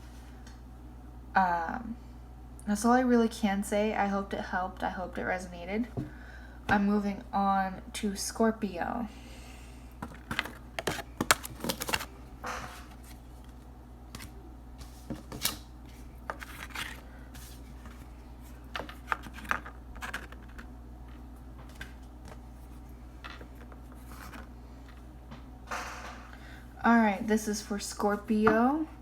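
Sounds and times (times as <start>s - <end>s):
cards being shuffled: 10.0s - 24.5s.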